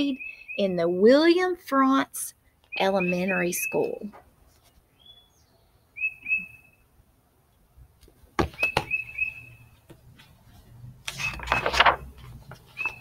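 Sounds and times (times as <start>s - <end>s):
small bird chirping: 0.0s - 0.8s, 4.9s - 6.8s, 8.6s - 9.8s.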